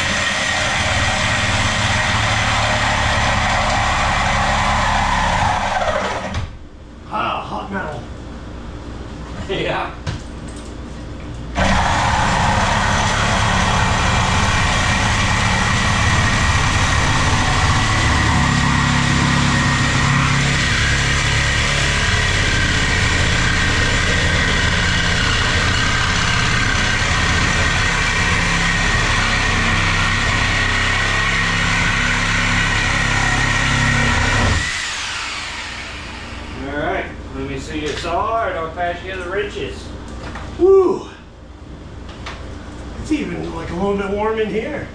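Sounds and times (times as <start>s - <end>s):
power saw cutting metal: 0.0s - 6.4s, 11.6s - 36.6s.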